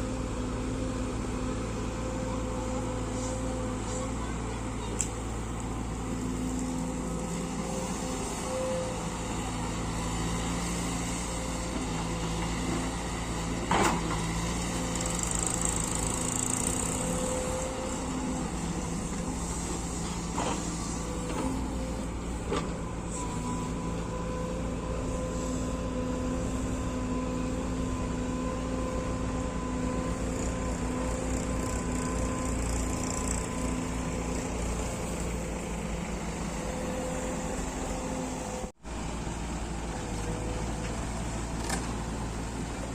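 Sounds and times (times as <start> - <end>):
diesel engines running: 0.0 - 42.9.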